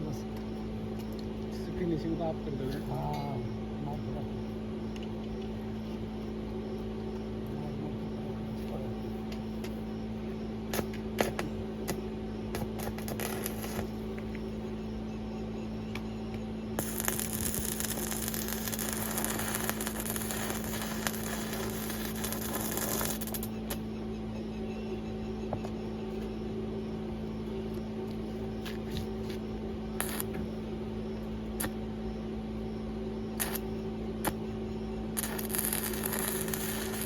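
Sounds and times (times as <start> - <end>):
steady electrical hum: 0.0 - 37.0
welding arc hiss: 10.7 - 14.2, 16.8 - 23.8, 30.0 - 30.4, 33.4 - 34.4, 35.2 - 37.0
sharp ticks: 15.9 - 23.8, 35.2 - 37.0.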